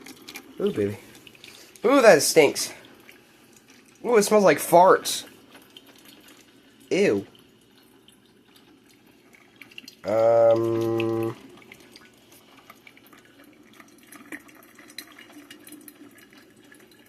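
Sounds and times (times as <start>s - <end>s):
coffee maker dripping and ticking: 0.0s - 17.0s
man groaning in disgust: 10.1s - 11.4s.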